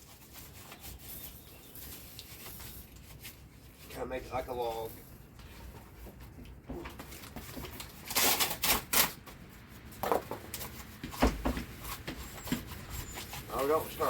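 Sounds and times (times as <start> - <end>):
cardboard tearing and crackling: 6.8 - 14.0.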